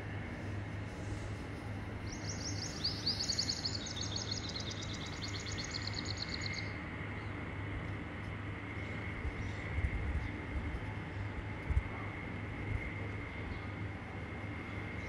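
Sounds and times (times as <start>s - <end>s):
steady low hum: 0.0s - 15.0s
small bird trilling: 2.1s - 6.8s.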